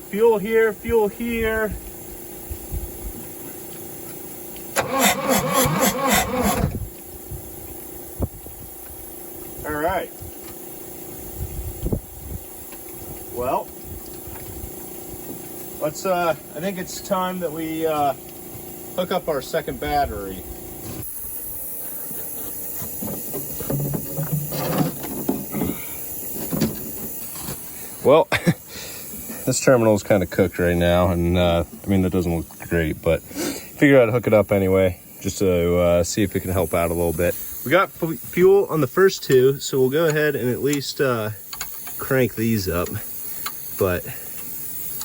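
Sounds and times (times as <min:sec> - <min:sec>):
steady hiss: 0:00.0 - 0:45.0
diesel engine cranking by starter: 0:04.7 - 0:06.9.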